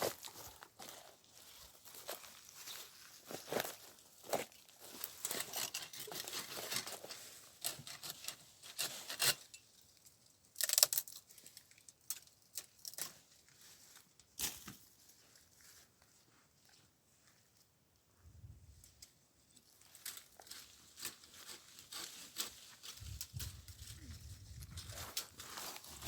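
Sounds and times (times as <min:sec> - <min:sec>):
dry wheat stalks rustling: 0:00.0 - 0:08.9, 0:19.6 - 0:26.0.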